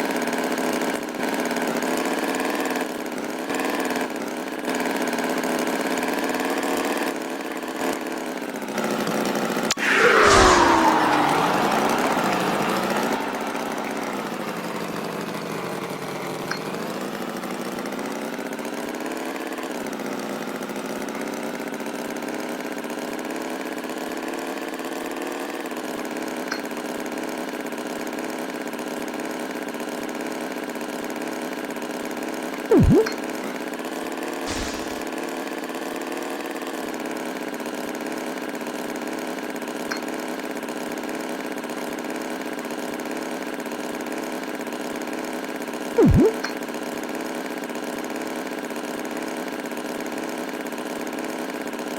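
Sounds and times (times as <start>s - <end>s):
short loud sound: 9.7s - 14.9s, 34.5s - 35.1s.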